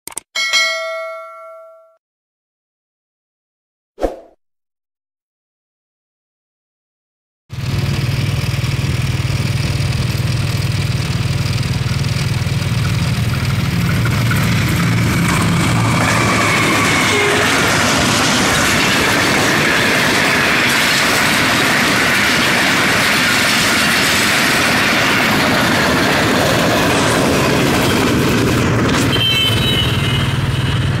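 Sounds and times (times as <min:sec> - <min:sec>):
train wheels rushing on rail: 0:07.6 - 0:31.0.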